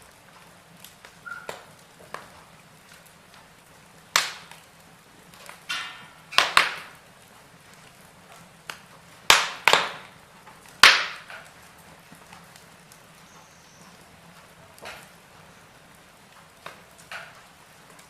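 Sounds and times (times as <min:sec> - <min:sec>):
faint fire hiss: 0:00.0 - 0:18.0
wood fire crackling and popping: 0:00.0 - 0:18.0.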